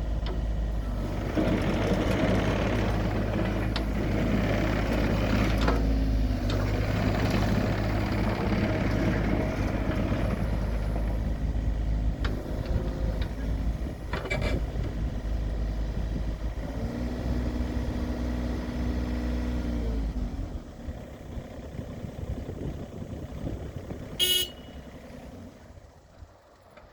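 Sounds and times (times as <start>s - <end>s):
excavator diesel engine running: 0.0s - 26.9s
short high-pitched beep: 24.2s - 24.8s.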